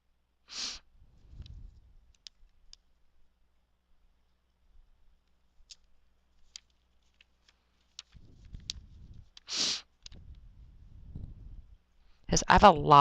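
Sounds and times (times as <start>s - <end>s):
short hissing rush: 0.5s - 0.8s, 9.0s - 9.9s
paper materials clicking and tapping: 5.7s - 10.2s.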